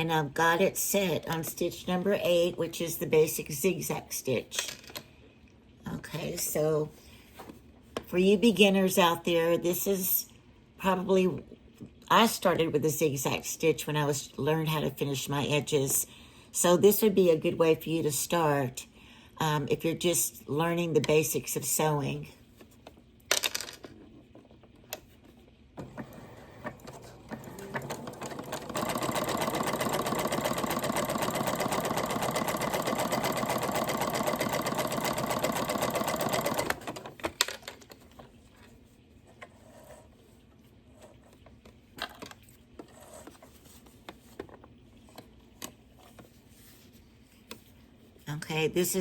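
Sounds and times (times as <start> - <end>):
sewing machine stitching: 25.8 - 37.4.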